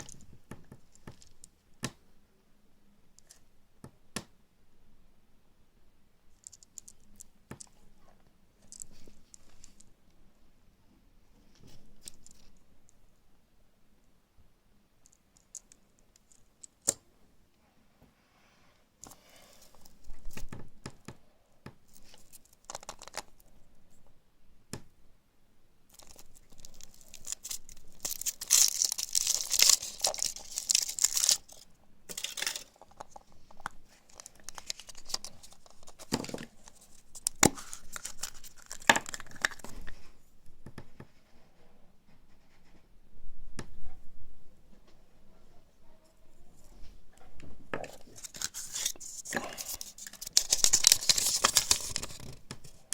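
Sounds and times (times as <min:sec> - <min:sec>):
foil wrapper tearing and crinkling: 0:26.0 - 0:33.2, 0:34.1 - 0:36.1, 0:36.8 - 0:39.6, 0:48.2 - 0:52.4.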